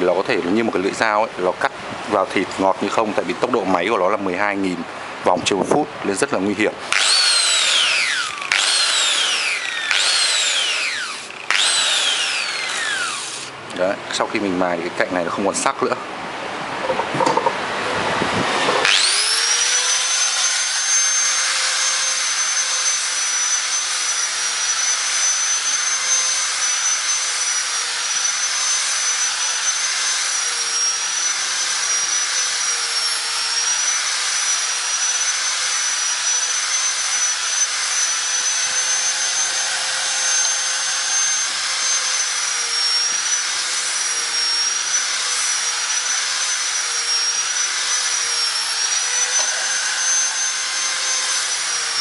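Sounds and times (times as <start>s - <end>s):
grinder whining while sanding metal: 6.8s - 13.6s, 18.4s - 52.0s.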